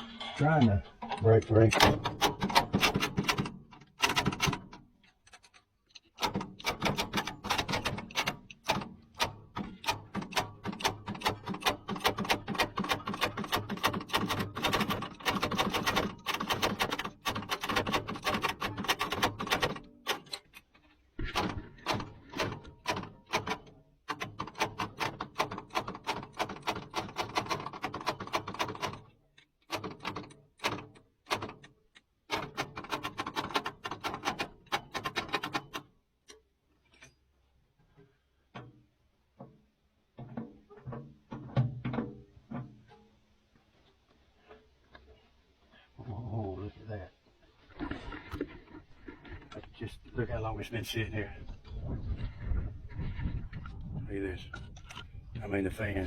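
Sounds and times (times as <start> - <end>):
rapid clicking and clattering: 1.0 - 20.4, 21.2 - 35.9.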